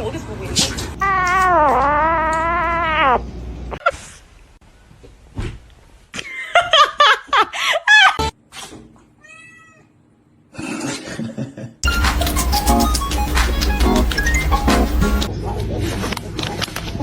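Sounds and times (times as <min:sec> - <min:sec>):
cat yowling: 0:01.0 - 0:03.3, 0:09.2 - 0:09.9
music: 0:11.8 - 0:15.3.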